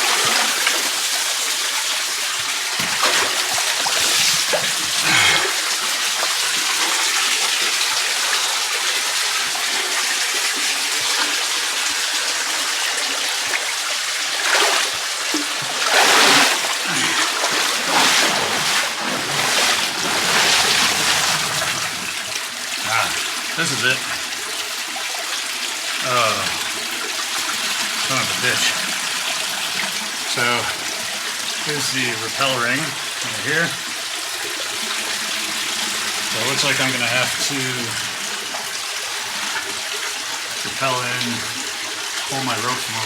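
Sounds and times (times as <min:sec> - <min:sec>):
creek water running: 0:00.0 - 0:43.0
splashes from wading: 0:02.4 - 0:07.2, 0:13.4 - 0:23.8.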